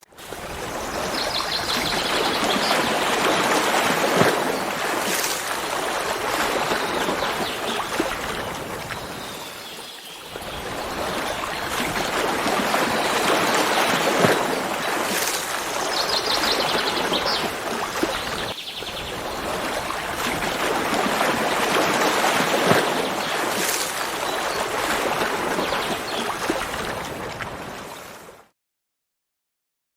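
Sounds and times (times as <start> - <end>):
water rushing: 0.0 - 28.4.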